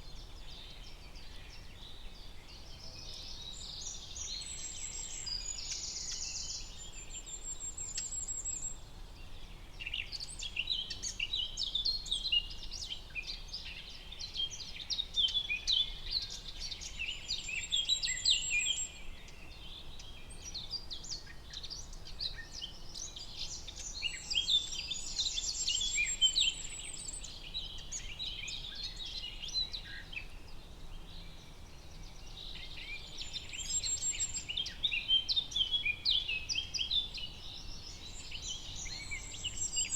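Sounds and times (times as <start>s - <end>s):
birds chirping and singing: 37.5s - 39.9s.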